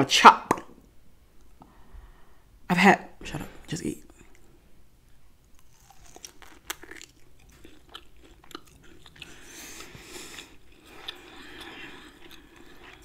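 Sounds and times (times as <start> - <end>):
person chewing with mouth clicks: 5.5 - 13.0.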